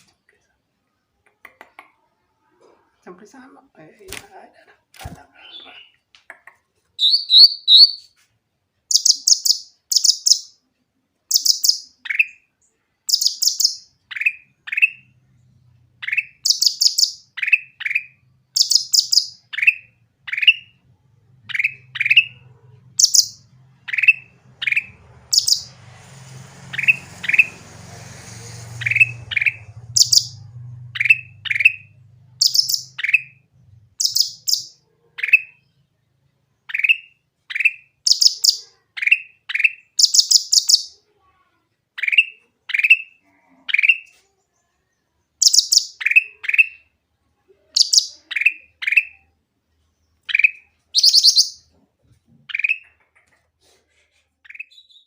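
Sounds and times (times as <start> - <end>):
bulbul singing: 7.0 - 8.1, 8.9 - 10.6, 11.3 - 12.5, 13.1 - 15.1, 16.0 - 20.8, 21.5 - 25.8, 26.6 - 27.8, 28.6 - 35.6, 36.7 - 41.0, 45.4 - 46.8, 47.7 - 49.3, 50.2 - 51.7
faint low hum: 17.8 - 36.8.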